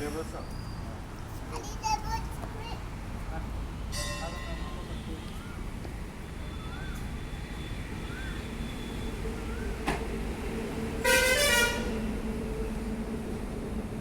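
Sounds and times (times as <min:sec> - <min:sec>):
road traffic rumble: 0:00.0 - 0:14.0
vehicle horn honk: 0:11.0 - 0:12.0.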